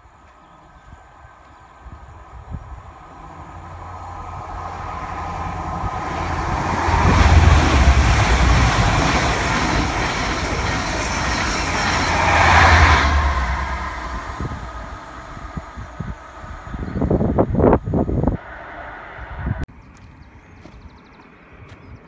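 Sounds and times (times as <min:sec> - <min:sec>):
wheel-on-rail noise: 0:02.2 - 0:16.7
diesel engine rumble: 0:02.6 - 0:19.6.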